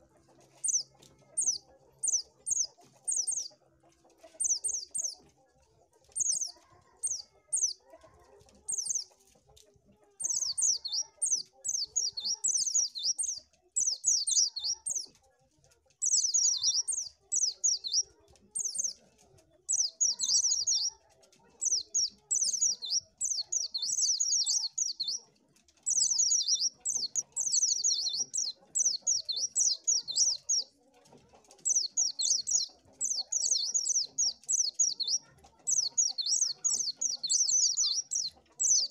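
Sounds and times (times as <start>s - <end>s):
bird twittering: 0.6s - 3.5s, 4.4s - 5.2s, 6.2s - 7.8s, 8.7s - 9.1s, 10.2s - 15.0s, 16.0s - 19.0s, 19.7s - 20.9s, 21.6s - 25.2s, 25.8s - 30.7s, 31.6s - 38.9s.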